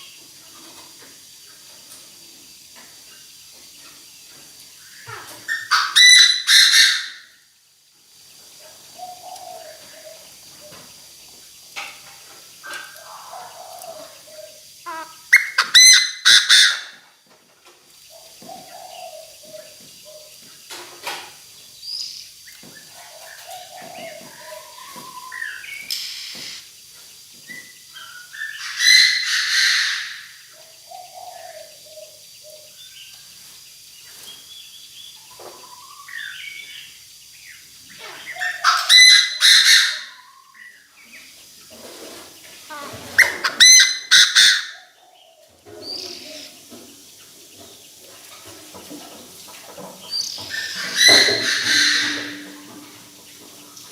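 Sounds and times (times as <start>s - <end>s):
francolin bird calling: 2.6s - 7.4s, 8.7s - 11.2s, 12.5s - 17.1s, 18.1s - 20.7s, 21.7s - 26.8s, 27.5s - 41.4s, 42.7s - 47.3s, 50.1s - 53.8s.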